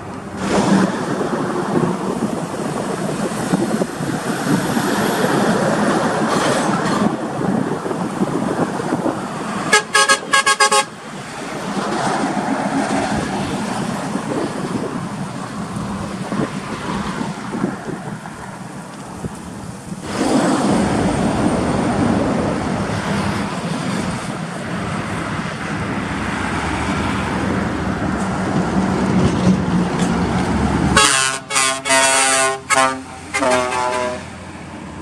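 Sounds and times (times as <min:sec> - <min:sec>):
traffic and road noise: 0:00.0 - 0:35.0
vehicle horn short toots: 0:06.3 - 0:07.2, 0:09.7 - 0:10.9, 0:31.0 - 0:34.3.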